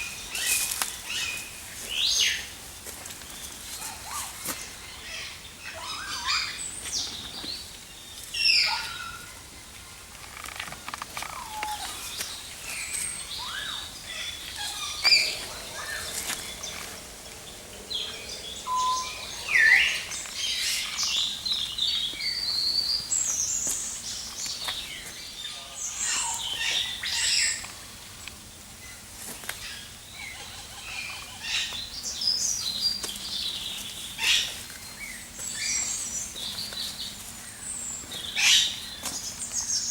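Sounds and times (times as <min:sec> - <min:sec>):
many birds chirping: 0:00.0 - 0:39.9
sharp bird calls: 0:11.2 - 0:28.0.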